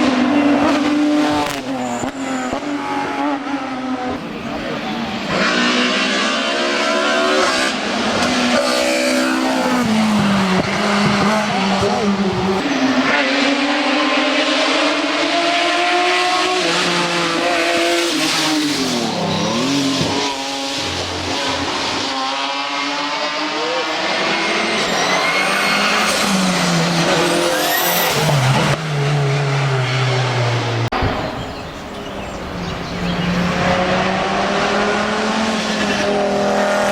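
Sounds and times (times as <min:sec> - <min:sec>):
race car engine revving: 0:00.0 - 0:36.9
engine at steady high revs: 0:28.5 - 0:36.9.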